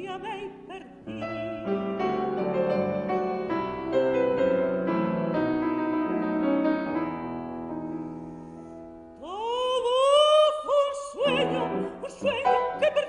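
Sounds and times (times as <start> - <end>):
slow piano chords: 1.0 - 9.3.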